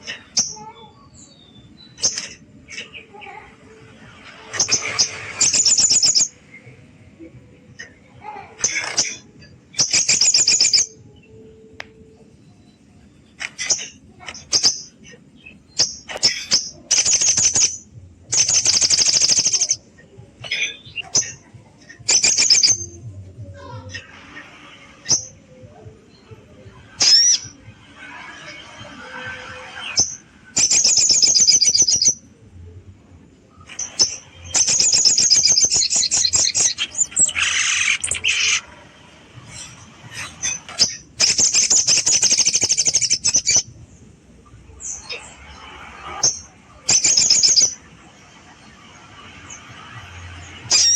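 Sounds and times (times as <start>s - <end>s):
bird chattering: 15.8s - 17.7s, 18.3s - 19.8s.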